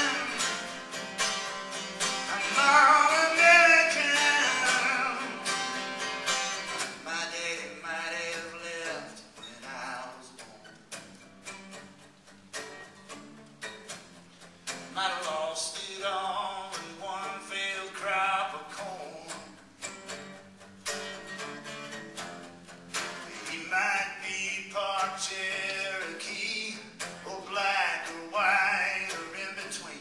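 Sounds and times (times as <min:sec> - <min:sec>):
person singing: 0:00.0 - 0:00.8, 0:02.2 - 0:05.7
guitar accompaniment: 0:00.0 - 0:30.0.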